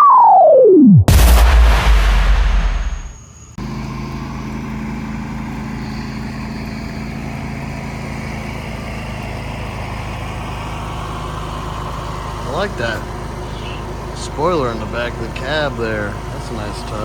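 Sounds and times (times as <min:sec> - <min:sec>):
diesel truck engine idling: 0:03.6 - 0:17.0.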